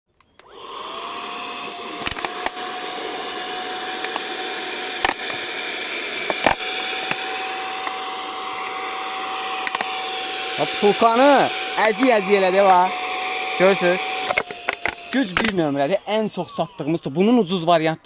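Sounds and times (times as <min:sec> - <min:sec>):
handheld vacuum cleaner motor whining: 0:00.2 - 0:18.0
sharp clicks and knocks: 0:02.0 - 0:02.6, 0:05.0 - 0:05.4, 0:06.3 - 0:08.0, 0:09.6 - 0:10.0, 0:14.2 - 0:15.7.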